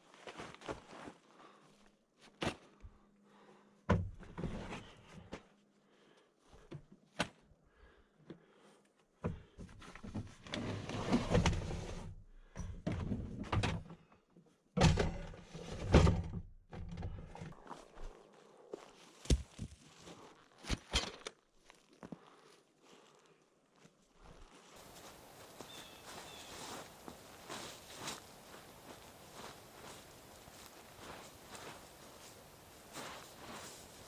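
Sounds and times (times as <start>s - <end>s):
rustling: 24.6s - 34.0s.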